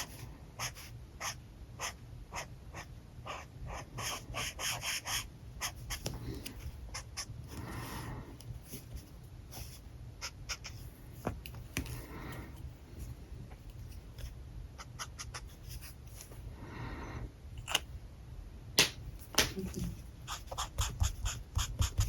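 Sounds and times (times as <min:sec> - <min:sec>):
markers scratching on paper: 0:00.0 - 0:06.1, 0:14.8 - 0:16.0, 0:20.3 - 0:22.0.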